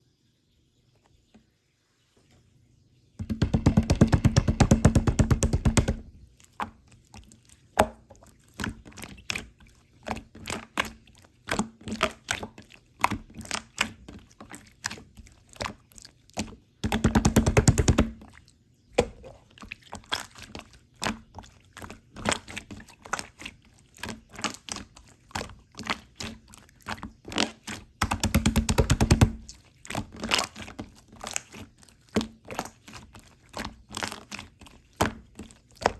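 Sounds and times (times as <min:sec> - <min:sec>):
slime squished by hand: 0:19.0 - 0:35.9.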